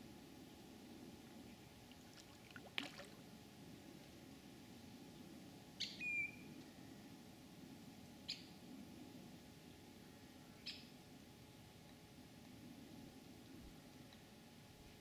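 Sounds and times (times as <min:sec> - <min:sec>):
thin bird whistle: 0:05.8 - 0:06.5.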